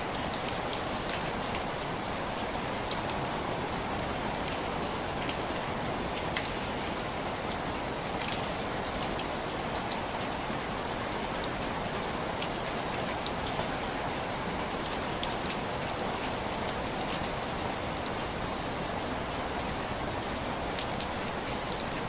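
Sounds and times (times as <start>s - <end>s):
rain pattering on window glass: 0.0s - 22.0s.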